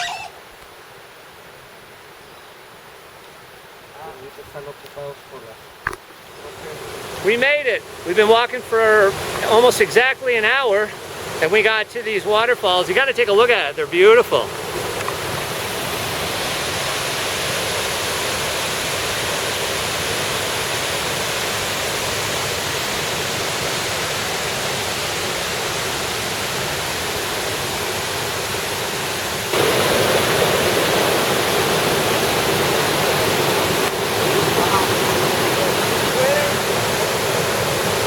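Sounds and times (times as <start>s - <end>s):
waterfall rushing: 2.8s - 38.0s.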